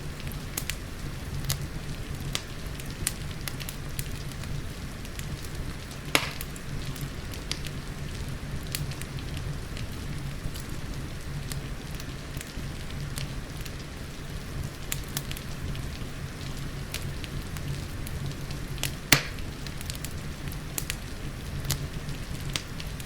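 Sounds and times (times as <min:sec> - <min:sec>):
rain hissing: 0:00.0 - 0:23.0
wood fire crackling and popping: 0:00.0 - 0:23.0.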